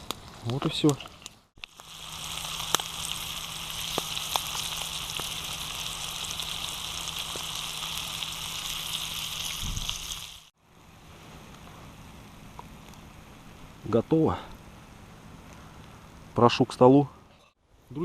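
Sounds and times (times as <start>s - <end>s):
oil popping and crackling: 0.0s - 10.5s
fish frying in hot oil: 1.6s - 10.5s.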